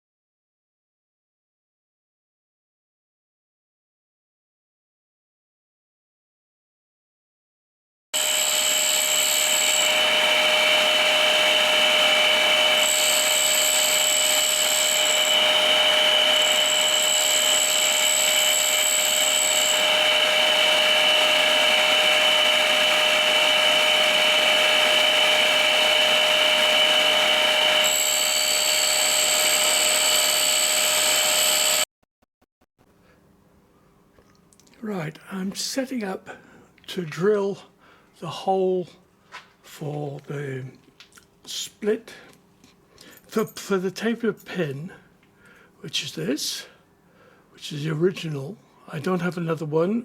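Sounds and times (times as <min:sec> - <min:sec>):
grinding wheel hiss: 0:08.2 - 0:31.8
shop vacuum cleaner: 0:08.2 - 0:31.9
tool grinder motor whine: 0:08.2 - 0:31.9.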